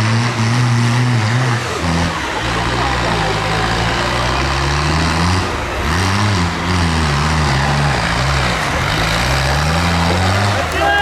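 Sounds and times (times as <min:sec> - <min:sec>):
tractor engines running: 0:00.0 - 0:11.0.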